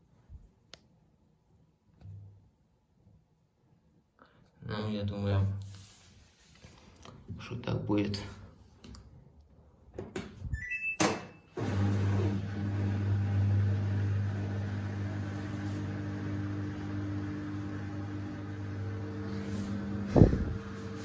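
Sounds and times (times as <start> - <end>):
washing machine beep: 10.5 - 12.2
drain pump humming: 11.6 - 21.0.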